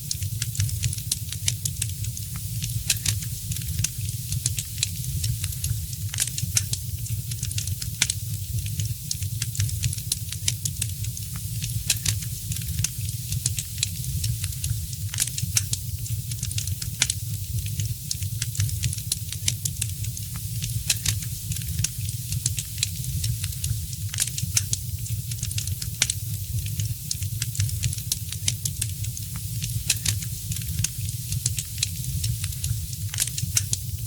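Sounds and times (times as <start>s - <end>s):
wood fire crackling and popping: 0.0s - 34.0s.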